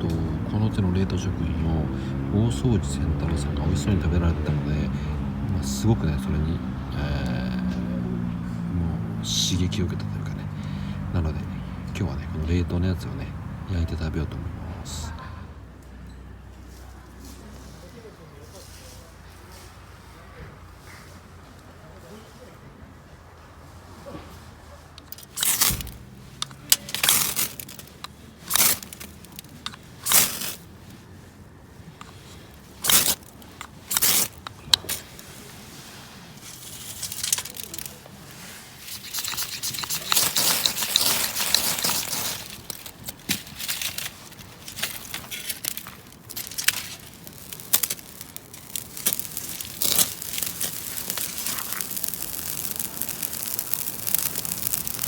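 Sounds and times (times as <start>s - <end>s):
plastic packaging crinkling: 24.9s - 31.1s, 31.9s - 55.0s
plastic packaging tearing: 25.0s - 31.0s, 32.0s - 35.5s, 36.2s - 55.0s.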